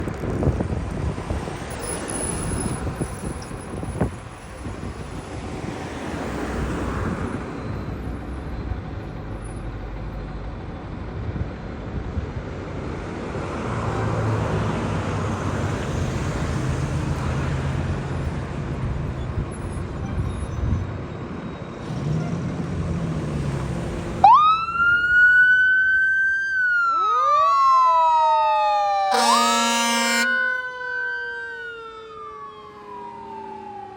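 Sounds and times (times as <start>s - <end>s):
road traffic noise: 0.0s - 33.9s
fire engine mechanical siren wail: 24.0s - 33.9s
second siren tone: 26.3s - 33.9s.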